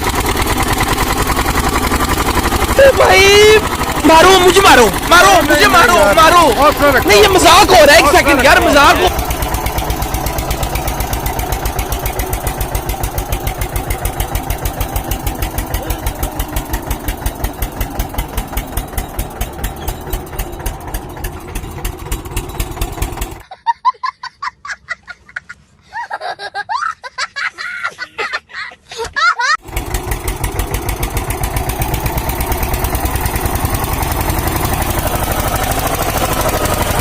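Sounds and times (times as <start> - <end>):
tractor diesel engine running: 0.0 - 23.4, 29.5 - 37.0
broken pitch-bending sounds: 0.4 - 23.4.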